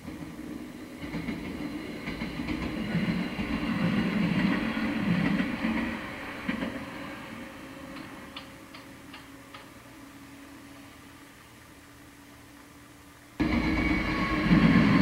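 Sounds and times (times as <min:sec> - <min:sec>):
train wheels clattering over rails: 0:00.0 - 0:09.8, 0:13.4 - 0:15.0.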